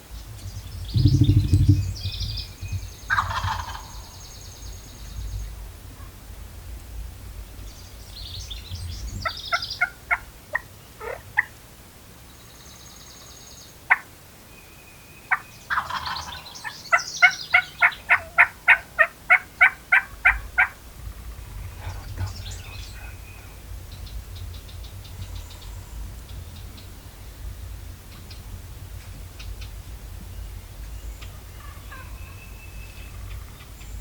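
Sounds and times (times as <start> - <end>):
faint songbirds chirping: 0.0 - 34.0
turkey yelping: 3.1 - 4.1, 15.3 - 20.8.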